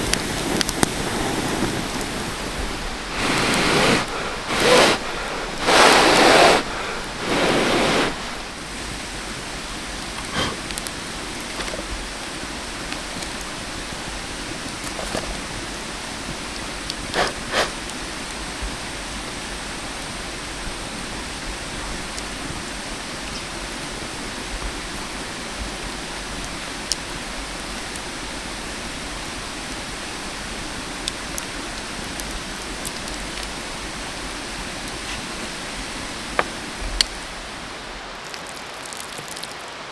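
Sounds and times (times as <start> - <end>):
food sizzling on grill: 0.0 - 12.8
embers crackling and popping: 0.0 - 23.8, 26.1 - 39.9.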